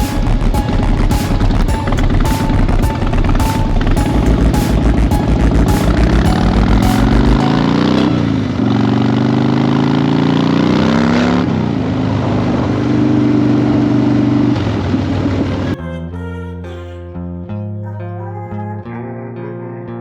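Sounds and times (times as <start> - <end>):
guitar music: 0.0 - 9.8, 15.5 - 20.0
motorcycle accelerating through gears: 5.9 - 15.5.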